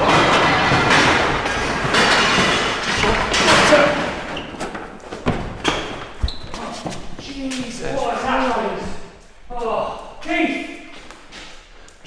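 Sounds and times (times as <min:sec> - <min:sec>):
thumps and knocks: 0:00.0 - 0:06.6
bangs and scuffling: 0:00.0 - 0:09.0.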